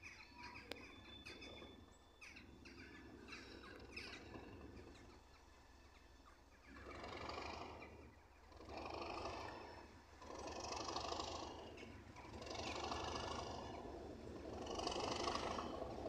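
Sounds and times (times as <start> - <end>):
distant train rumbling: 0.8 - 16.0
locomotive exhaust rushing: 8.6 - 16.0.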